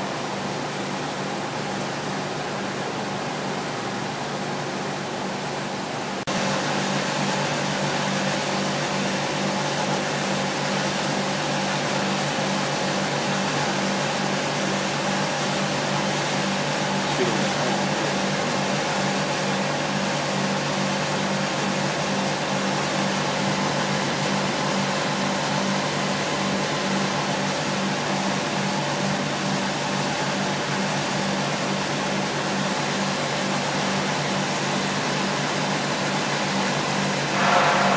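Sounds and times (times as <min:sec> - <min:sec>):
even hiss: 0:37.3 - 0:37.9
machine humming with pulsing tone: 0:37.3 - 0:37.9.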